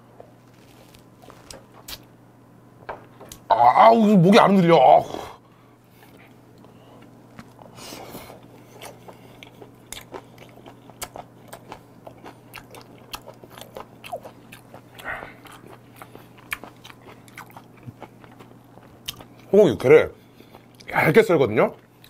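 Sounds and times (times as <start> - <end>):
wet chewing clicks and smacks: 8.5 - 19.5.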